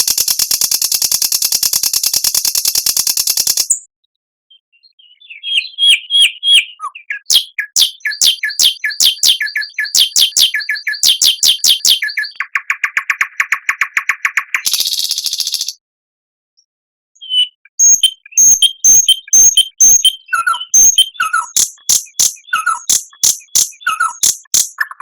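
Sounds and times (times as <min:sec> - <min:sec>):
songbird singing: 0:04.5 - 0:15.8, 0:17.2 - 0:25.0.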